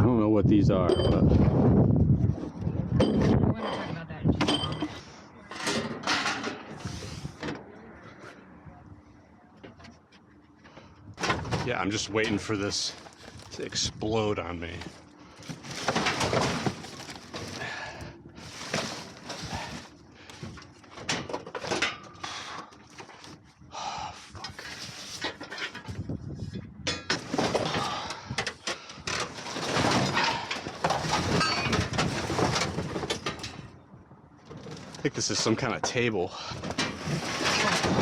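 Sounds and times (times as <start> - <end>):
scrap metal clattering and scraping: 3.0 - 7.5, 14.6 - 23.4, 24.4 - 33.8, 34.4 - 38.0.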